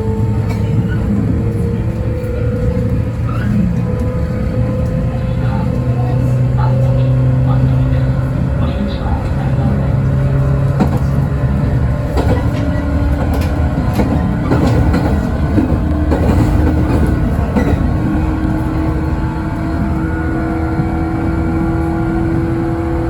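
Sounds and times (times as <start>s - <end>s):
electric train motor hum: 0.0s - 23.0s
wheels clicking over rail joints: 10.0s - 19.8s.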